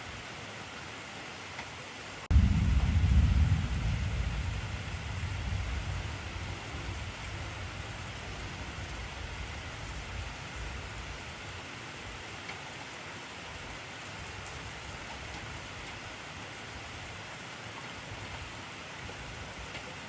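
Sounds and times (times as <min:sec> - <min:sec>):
rain drops ticking: 0:01.5 - 0:20.0
heavy rain hissing: 0:02.0 - 0:12.4.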